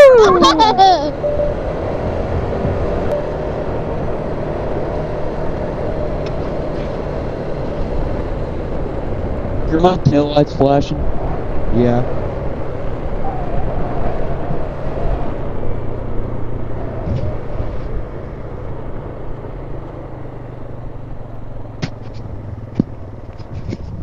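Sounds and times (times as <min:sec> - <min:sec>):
off-road vehicle engine: 0:00.0 - 0:24.0
vehicle jostling: 0:00.0 - 0:24.0.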